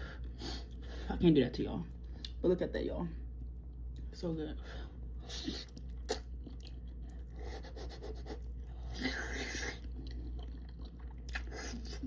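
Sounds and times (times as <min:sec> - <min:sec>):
low steady hum: 0:00.0 - 0:12.0
wet chewing clicks: 0:05.6 - 0:07.4.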